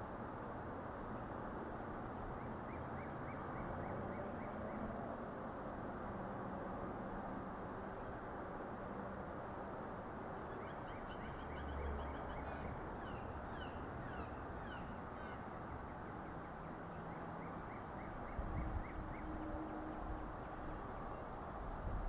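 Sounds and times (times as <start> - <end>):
steady outdoor hiss: 0.0 - 22.0
birds chirping: 10.5 - 19.5.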